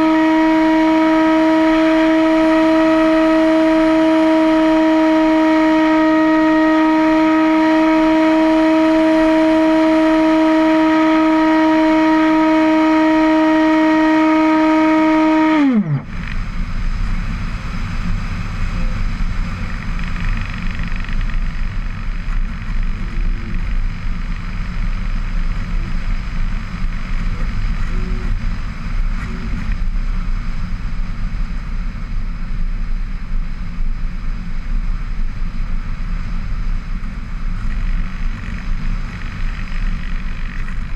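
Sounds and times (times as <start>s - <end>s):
wind rumble on microphone: 15.6s - 40.9s.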